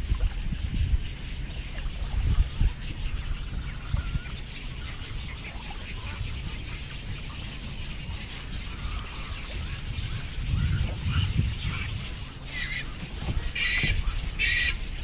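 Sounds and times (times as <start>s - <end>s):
birds chirping and chattering: 0.0s - 15.0s
low thumps and rumble: 0.0s - 15.0s.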